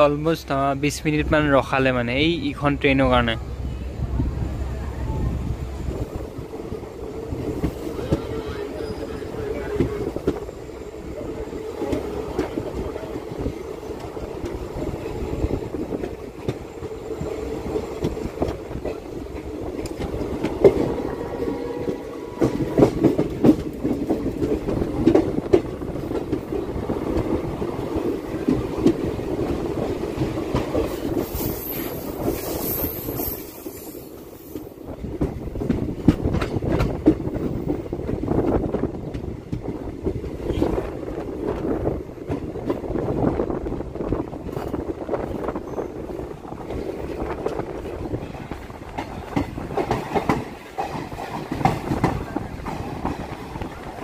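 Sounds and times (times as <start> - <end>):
train rumble: 0.0 - 54.0
train wheels clacking over rail joints: 21.8 - 27.4, 46.6 - 54.0.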